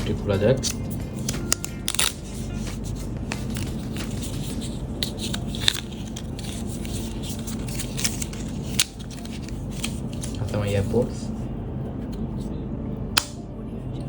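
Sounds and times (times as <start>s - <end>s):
cardboard packaging rustling: 0.0s - 11.1s
steady low hum: 0.0s - 14.0s
sharp snap: 13.2s - 13.4s.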